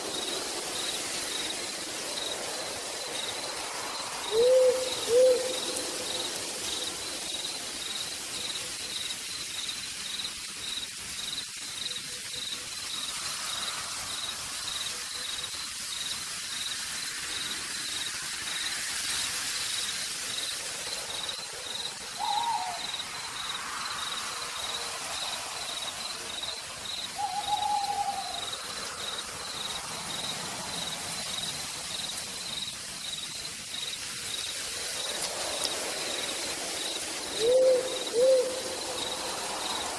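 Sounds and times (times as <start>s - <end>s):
insect trilling: 0.0s - 16.7s, 19.7s - 39.9s
rain falling through forest: 0.0s - 39.9s
owl hooting: 4.3s - 5.8s, 22.2s - 23.0s, 27.2s - 28.5s, 37.4s - 38.8s.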